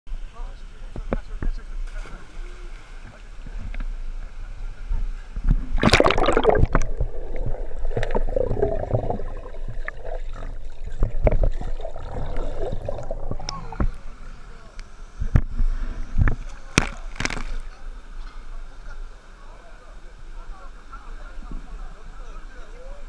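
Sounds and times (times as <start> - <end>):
water splashing and sloshing: 5.4 - 14.2.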